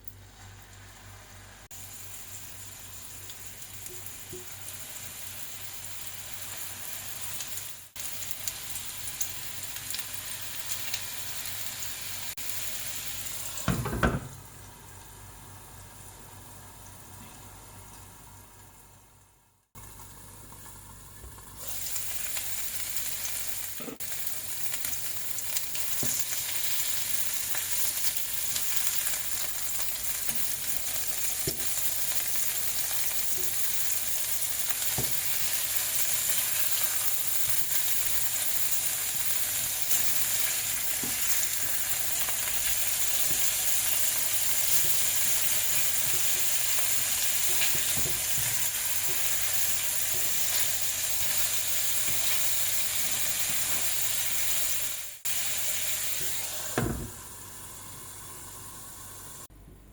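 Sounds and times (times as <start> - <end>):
patties sizzling in a frying pan: 0.2 - 19.1, 19.7 - 59.5.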